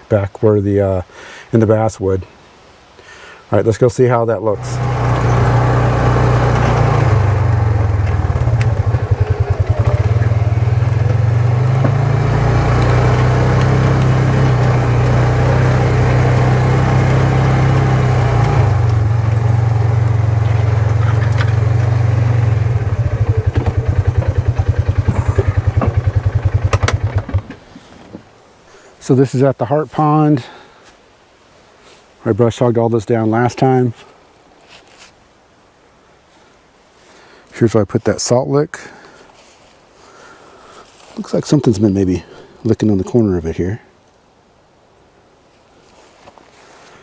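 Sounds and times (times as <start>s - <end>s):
off-road vehicle engine running: 4.6s - 28.0s.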